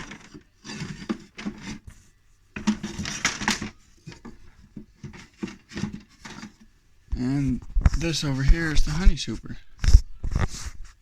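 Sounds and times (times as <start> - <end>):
wood scraping: 0.0 - 8.1.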